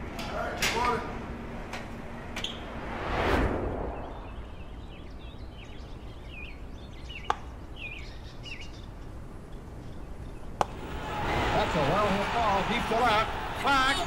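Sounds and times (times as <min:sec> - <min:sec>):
low rumble: 0:02.0 - 0:05.8
small birds chirping: 0:04.0 - 0:10.8.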